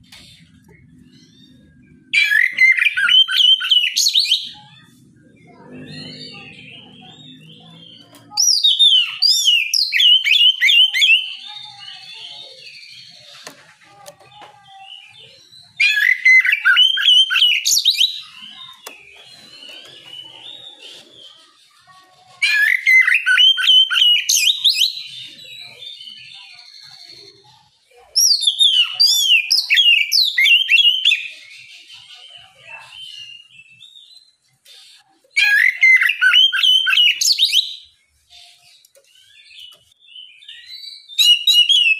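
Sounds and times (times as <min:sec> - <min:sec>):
soft bird twittering: 0:00.0 - 0:21.9
bird whistled song: 0:00.1 - 0:04.8, 0:05.4 - 0:13.6, 0:14.9 - 0:21.6, 0:22.4 - 0:27.5, 0:28.1 - 0:41.9.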